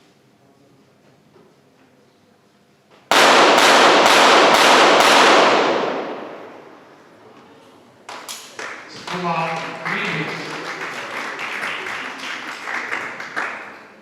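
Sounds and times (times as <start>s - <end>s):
gunshot echo: 3.1s - 6.9s
pistol shots cracking: 3.1s - 6.9s.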